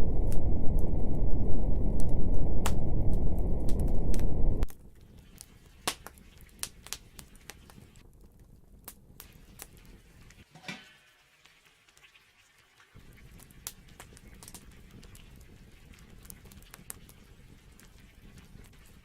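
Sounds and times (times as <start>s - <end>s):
loud low rumble: 0.0s - 4.7s
campfire crackling and popping: 0.0s - 10.5s, 13.0s - 19.0s.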